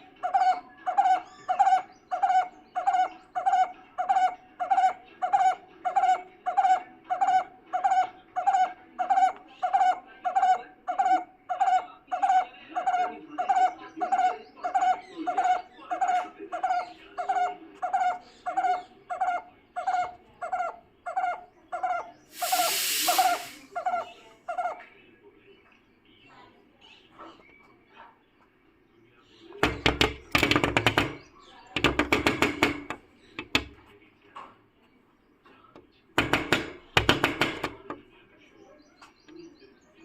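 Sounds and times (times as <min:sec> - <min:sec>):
bird calling: 0:00.0 - 0:24.9
brief rush of noise: 0:22.4 - 0:23.7.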